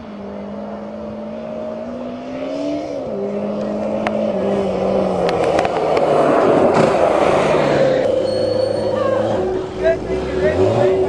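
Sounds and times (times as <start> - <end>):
rushing noise: 4.2 - 11.0.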